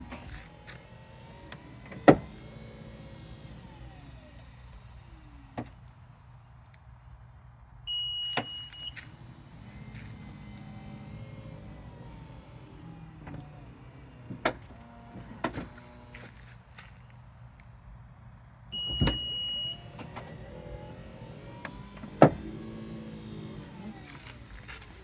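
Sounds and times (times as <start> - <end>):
tailgate motor whine: 0.0 - 6.1, 7.9 - 17.0, 18.8 - 25.0
steady beep: 7.9 - 9.0, 18.8 - 19.8.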